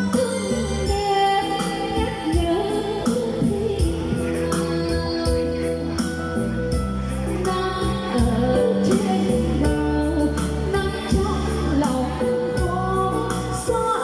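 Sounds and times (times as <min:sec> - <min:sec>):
electronic keyboard playing chords: 0:00.0 - 0:14.0
person singing: 0:07.2 - 0:14.0.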